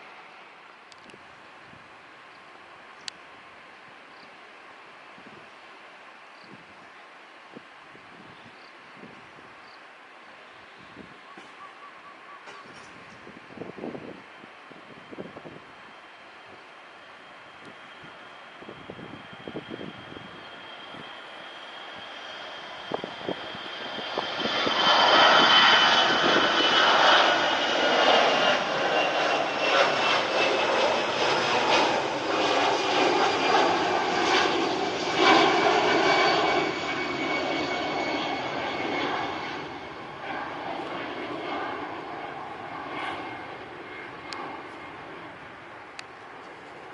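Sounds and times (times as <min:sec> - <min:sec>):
airliner engines passing: 0:00.0 - 0:46.9
high engine whine: 0:12.6 - 0:46.9.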